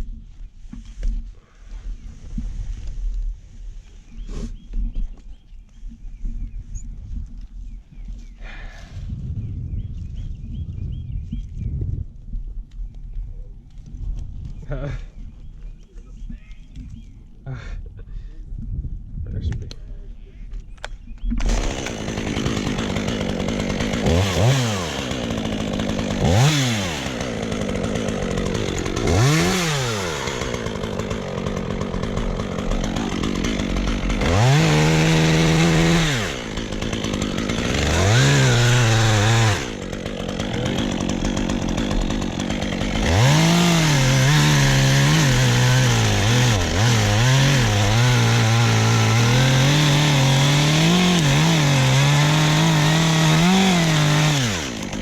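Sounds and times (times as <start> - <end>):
chainsaw cutting wood: 21.2 - 55.0
chainsaw revving: 21.4 - 55.0.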